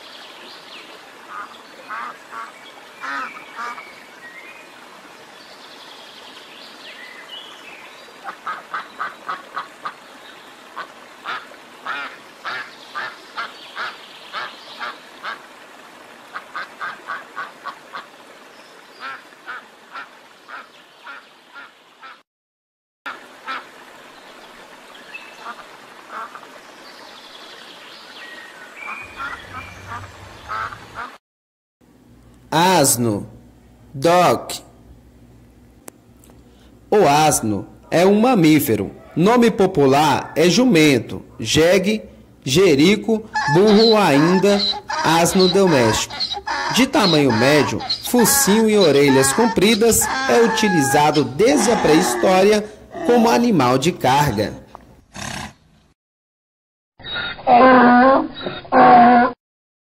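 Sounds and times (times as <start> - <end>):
ducks quacking: 1.2 - 3.8, 8.2 - 10.0, 10.7 - 15.4, 16.3 - 18.2, 28.8 - 31.2, 43.1 - 53.4.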